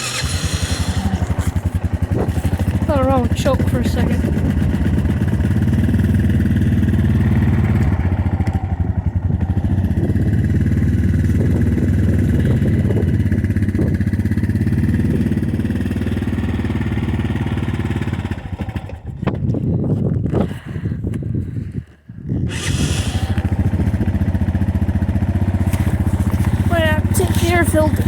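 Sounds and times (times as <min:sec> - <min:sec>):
atv engine idling unevenly: 0:00.0 - 0:20.4, 0:22.5 - 0:28.0.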